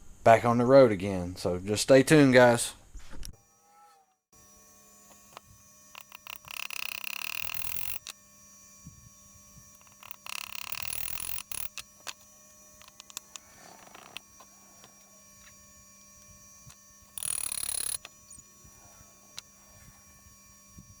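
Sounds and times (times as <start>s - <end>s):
rapid mechanical clicking: 5.0s - 8.2s, 8.8s - 21.0s.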